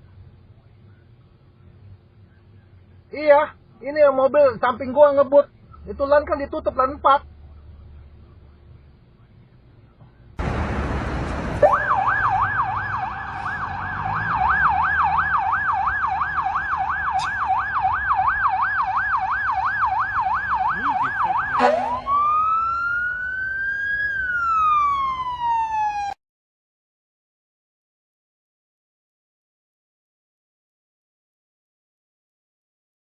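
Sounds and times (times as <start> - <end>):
road noise: 0.0 - 26.2
emergency siren yelping and wailing: 10.4 - 26.2.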